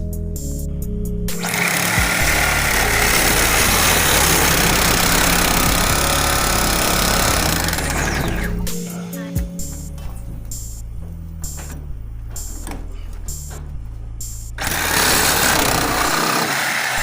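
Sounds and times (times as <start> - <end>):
power tool grinding copper pipe: 1.3 - 8.7, 14.6 - 17.0.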